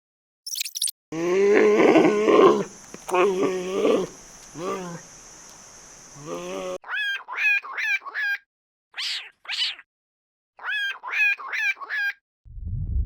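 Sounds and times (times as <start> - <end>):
breathy hissing bursts: 2.0 - 6.8.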